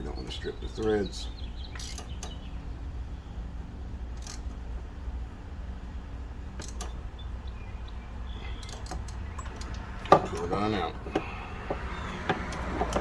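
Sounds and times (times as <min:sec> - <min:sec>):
metallic ratchet clicks: 0:01.7 - 0:02.4, 0:04.2 - 0:04.6, 0:08.5 - 0:10.5.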